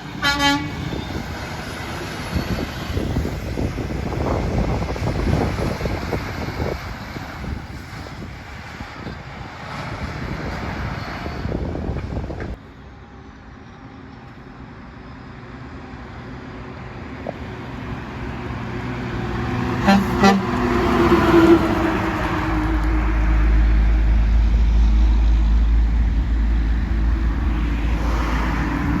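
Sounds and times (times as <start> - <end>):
truck horn blasts: 0.1 - 0.8, 19.7 - 23.2
wind noise on microphone: 0.1 - 12.6, 19.6 - 29.0
truck engine passing: 13.0 - 29.0.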